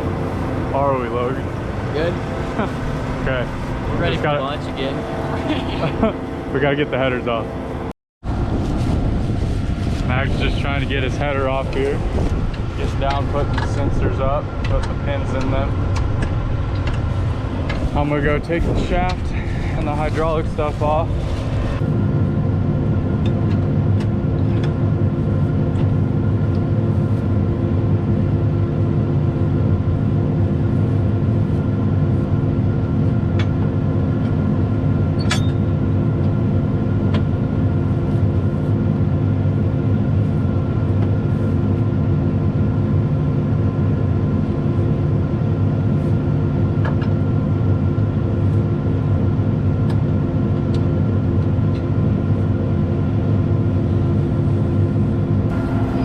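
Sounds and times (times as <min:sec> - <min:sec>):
diesel engine idling: 0:00.0 - 0:07.9, 0:55.5 - 0:56.0.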